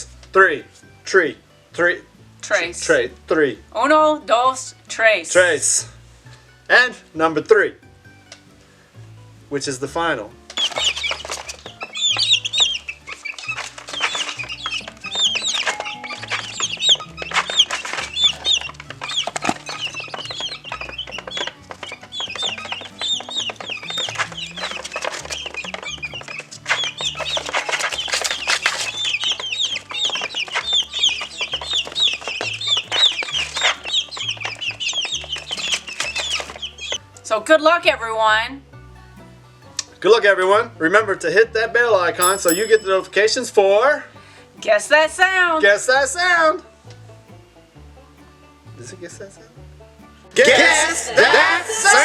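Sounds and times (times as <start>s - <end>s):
birds chirping: 10.6s - 37.0s.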